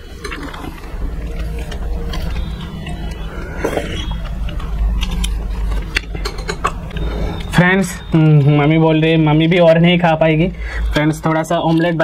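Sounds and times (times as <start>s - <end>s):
chewing and wet mouth sounds: 0.0s - 8.6s
steady low hum: 0.0s - 12.0s.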